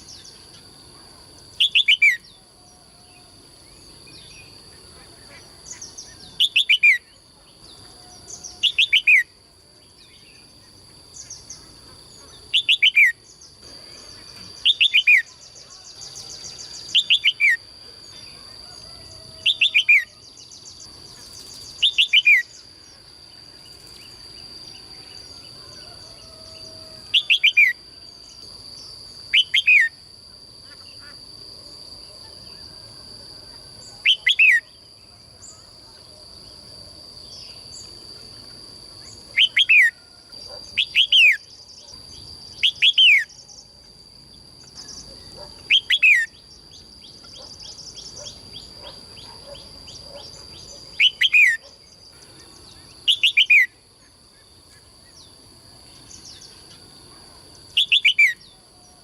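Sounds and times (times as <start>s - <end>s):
songbird calling: 0.0s - 23.0s, 23.7s - 30.0s, 33.4s - 36.3s, 39.0s - 43.7s, 44.6s - 55.4s, 56.0s - 59.0s.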